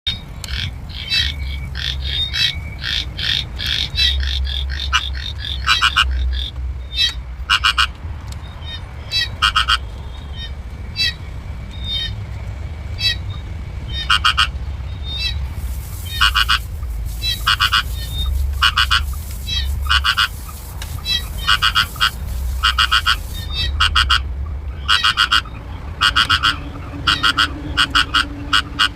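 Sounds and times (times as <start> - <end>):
animal croaking call: 0.5 - 8.0, 9.1 - 11.2, 13.9 - 15.4, 16.0 - 28.9
steady low hum: 8.6 - 28.9.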